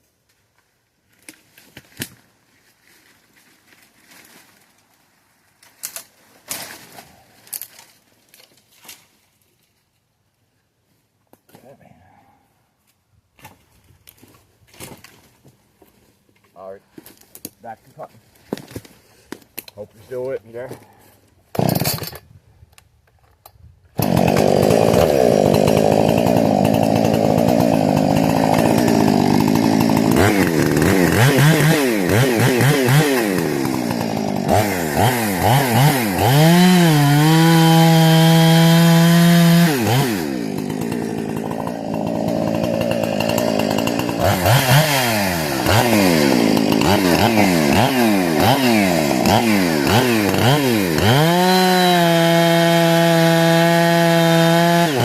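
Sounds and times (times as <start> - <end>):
chainsaw revving and cutting: 21.6 - 22.2, 24.0 - 55.0.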